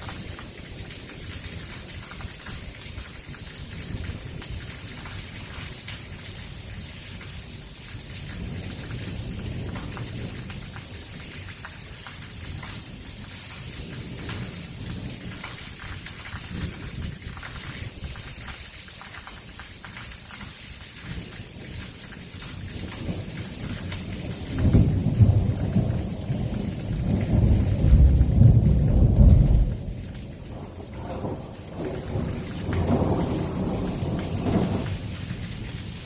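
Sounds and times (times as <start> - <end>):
heavy rain: 0.0 - 36.0
thunder rumbling: 22.9 - 36.0.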